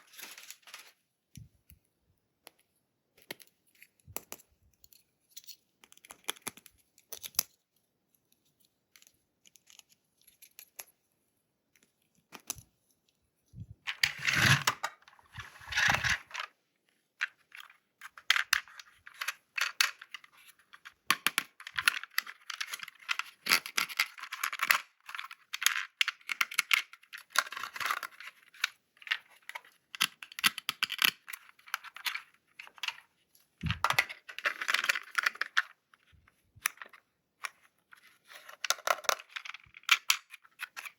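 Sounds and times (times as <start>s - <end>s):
plastic toy parts clicking: 17.3s - 33.0s, 33.6s - 35.8s, 38.4s - 40.9s.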